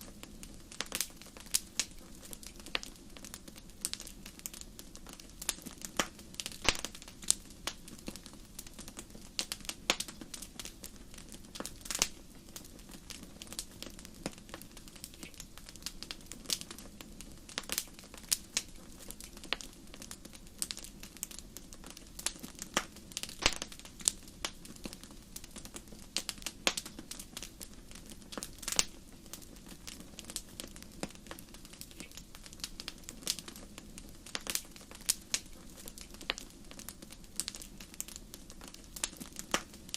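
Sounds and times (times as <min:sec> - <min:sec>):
fire pops and snaps: 0:00.0 - 0:39.9
low rush of flames: 0:00.0 - 0:39.9.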